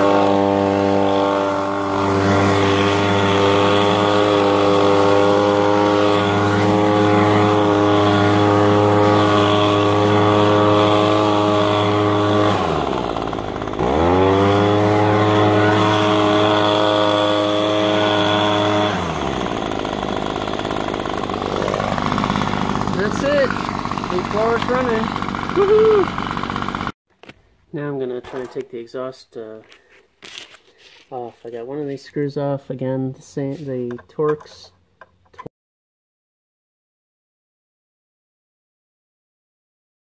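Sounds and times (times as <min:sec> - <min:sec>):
leaf blower engine: 0:00.0 - 0:27.0.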